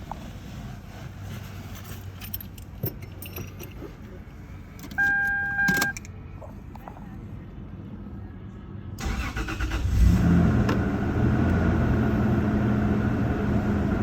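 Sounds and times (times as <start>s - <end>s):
car keys jangling and clicking: 1.8s - 6.2s
dashboard warning chime beep: 4.9s - 6.0s.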